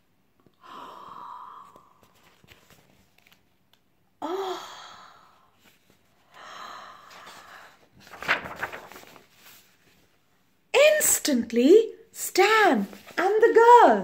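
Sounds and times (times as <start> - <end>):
woman sighing: 0.6 - 2.0, 4.2 - 5.5.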